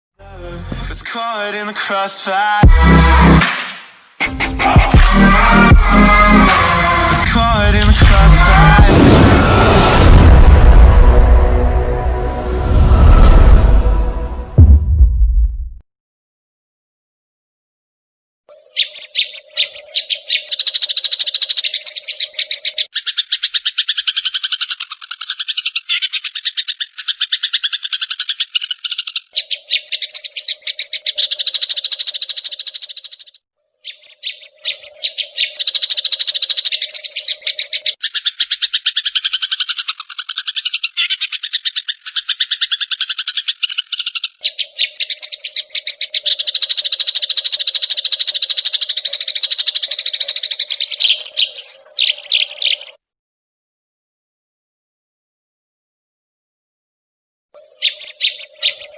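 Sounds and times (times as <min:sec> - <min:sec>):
songbird chirps: 0:18.5 - 0:53.0, 0:57.6 - 0:58.9.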